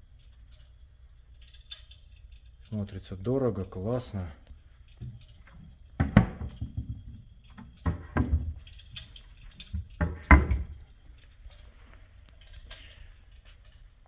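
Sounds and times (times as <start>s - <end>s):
cabinet doors knocking shut: 6.0s - 8.7s, 9.7s - 10.8s.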